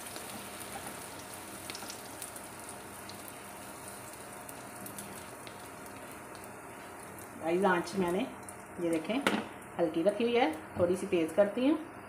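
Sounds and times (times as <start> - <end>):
egg batter sizzling in oil: 0.0 - 11.0.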